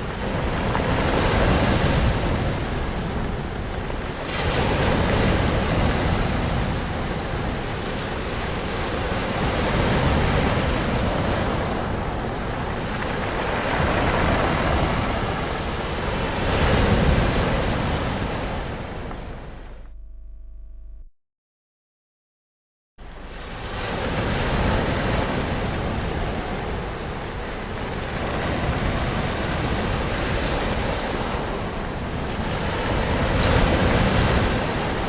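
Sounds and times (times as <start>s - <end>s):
ocean waves breaking: 0.0s - 19.8s, 23.0s - 35.0s
low rumble: 19.2s - 21.1s.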